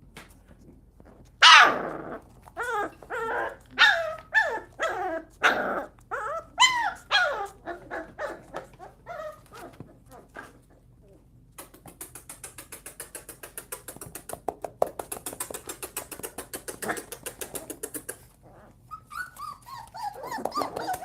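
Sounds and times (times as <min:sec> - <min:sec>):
puppies barking and growling: 0:01.1 - 0:11.0, 0:15.2 - 0:21.0
puppies yapping: 0:02.6 - 0:10.6, 0:18.9 - 0:21.0.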